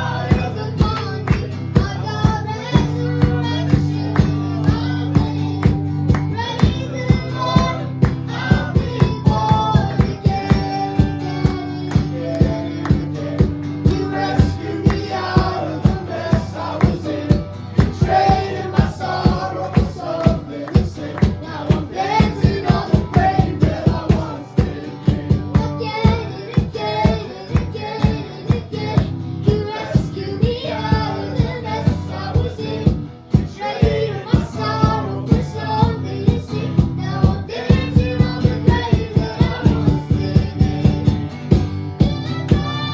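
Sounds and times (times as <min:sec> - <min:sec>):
drum beat: 0:00.0 - 0:42.8
held bass notes: 0:00.0 - 0:42.9
singing: 0:00.0 - 0:42.9.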